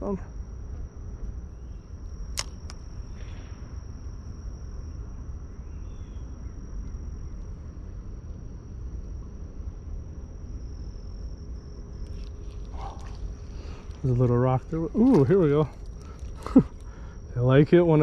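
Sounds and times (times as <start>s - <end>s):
insects trilling: 0.0s - 18.0s
low outdoor rumble: 0.0s - 18.0s
sharp clicks: 2.3s - 2.8s.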